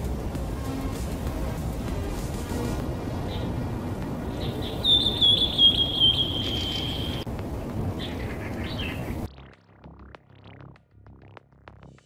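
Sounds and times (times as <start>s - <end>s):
low rumbling background noise: 0.0s - 9.3s
high-pitched trilling animal call: 4.6s - 7.2s.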